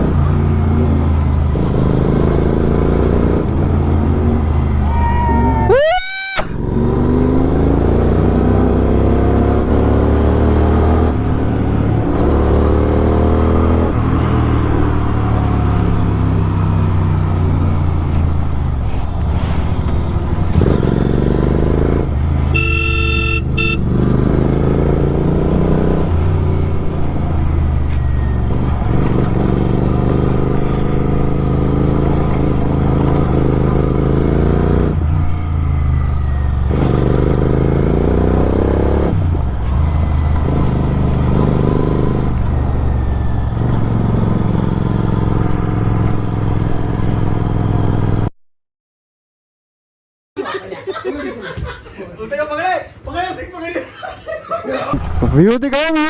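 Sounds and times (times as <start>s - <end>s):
motorcycle engine revving: 0.0s - 48.3s
vehicle horn: 22.5s - 24.0s.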